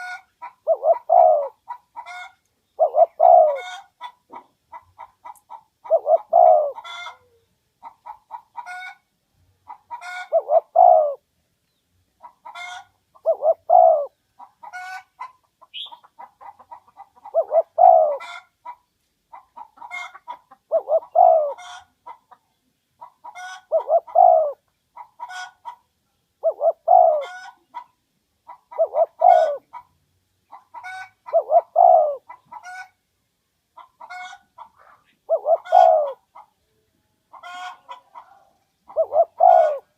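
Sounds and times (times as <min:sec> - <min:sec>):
dove cooing: 0:00.0 - 0:08.9, 0:09.7 - 0:11.3, 0:12.2 - 0:15.1, 0:15.7 - 0:18.5, 0:19.9 - 0:21.9, 0:23.0 - 0:25.6, 0:26.4 - 0:27.9, 0:28.5 - 0:29.8, 0:30.5 - 0:32.9, 0:33.8 - 0:36.6, 0:37.4 - 0:39.9.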